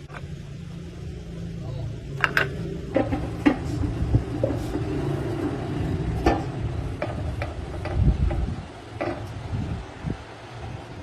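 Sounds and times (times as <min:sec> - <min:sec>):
heavy engine rumbling: 0:00.0 - 0:11.0
sharp metallic clicks and knocks: 0:02.2 - 0:09.4.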